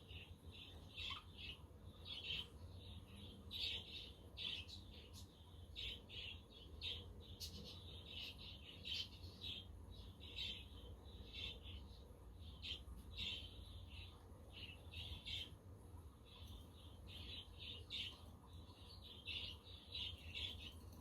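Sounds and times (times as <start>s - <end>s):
budgerigars chirping: 0.0s - 2.5s.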